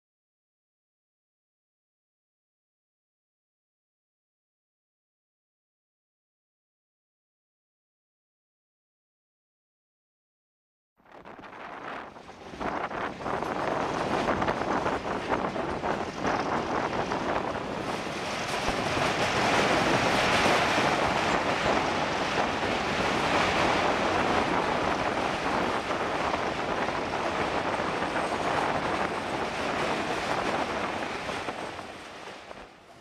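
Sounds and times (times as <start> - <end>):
wind buffeting microphone: 11.1 - 33.0
train wheels rumbling and rattling: 11.4 - 33.0.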